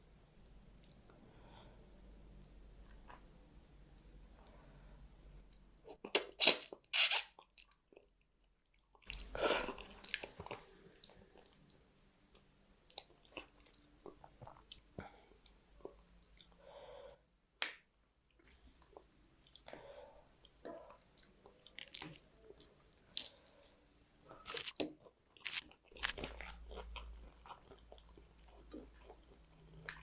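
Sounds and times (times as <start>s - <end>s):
chewing with lip smacks: 20.6s - 29.1s
crunching bites: 24.4s - 27.1s.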